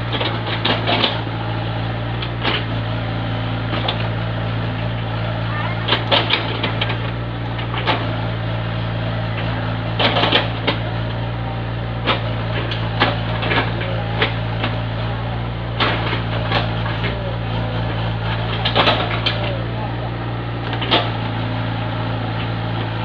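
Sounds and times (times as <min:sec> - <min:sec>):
construction knocks and clatter: 0:00.0 - 0:23.0
engine droning: 0:00.0 - 0:23.0.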